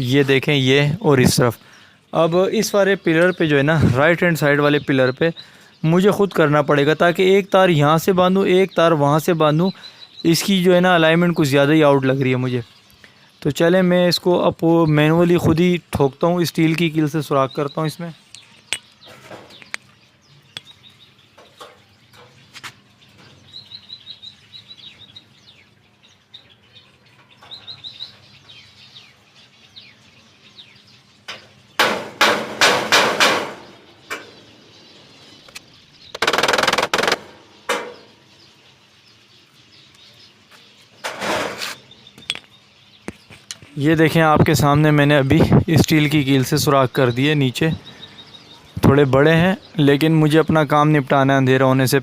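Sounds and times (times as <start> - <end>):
finches chirping: 0.0 - 31.9, 32.6 - 52.0
hammer striking nail: 31.8 - 33.6.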